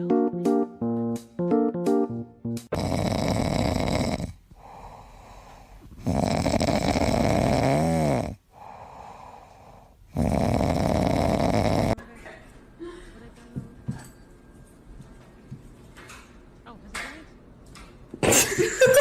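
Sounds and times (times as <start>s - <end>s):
dog snoring: 2.7s - 12.0s.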